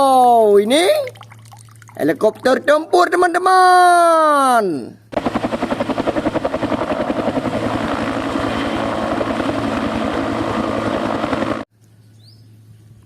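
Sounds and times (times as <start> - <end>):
toy helicopter rotor chopping: 5.2 - 11.6.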